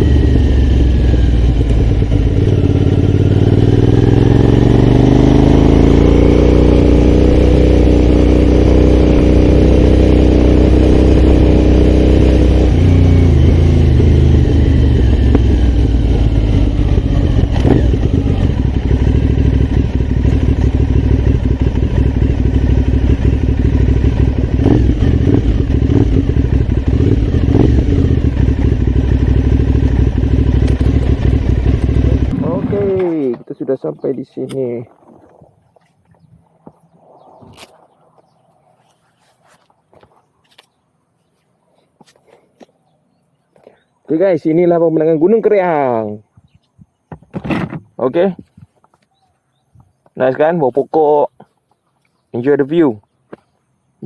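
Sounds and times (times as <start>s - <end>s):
motorcycle engine revving: 0.0s - 33.5s.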